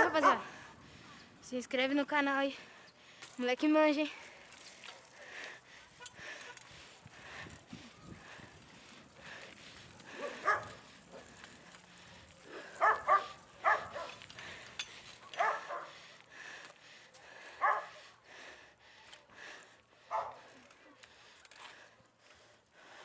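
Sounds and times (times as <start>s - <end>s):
dog barking: 0.0s - 0.4s, 10.2s - 10.7s, 12.8s - 14.2s, 15.4s - 15.9s, 17.6s - 17.9s, 20.1s - 20.4s.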